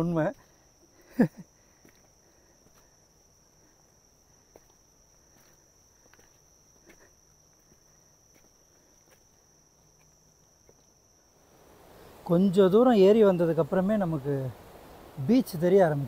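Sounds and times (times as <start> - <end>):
high-pitched insect drone: 0.0 - 16.0
soft footsteps: 3.6 - 11.0.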